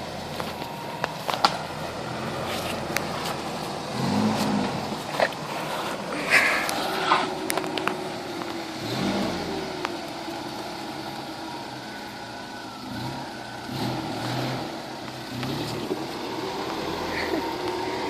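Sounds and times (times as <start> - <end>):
pickup engine revving: 0.0 - 18.0.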